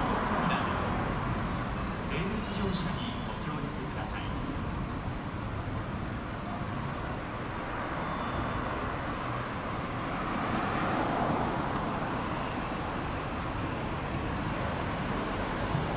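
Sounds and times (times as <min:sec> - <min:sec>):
electric train pulling away: 0:00.0 - 0:15.9
faint high steady tone: 0:00.0 - 0:15.9
road traffic: 0:00.0 - 0:15.9.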